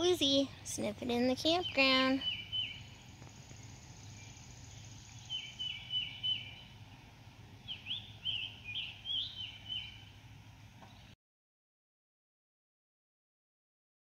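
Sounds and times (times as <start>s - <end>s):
steady low hum: 0.0s - 11.2s
songbirds singing: 0.1s - 11.2s.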